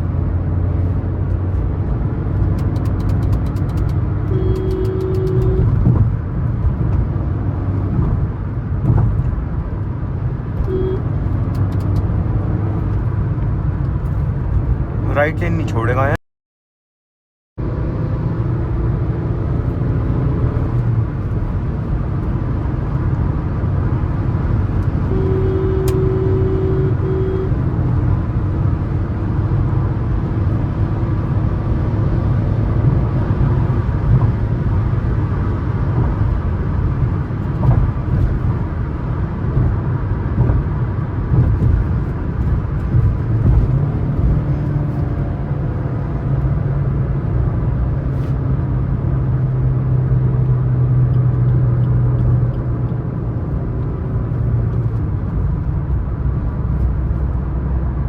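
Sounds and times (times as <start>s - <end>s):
road and engine rumble: 0.0s - 16.2s, 17.6s - 58.0s
short steady tone: 4.3s - 5.7s, 10.7s - 11.0s, 25.1s - 27.6s.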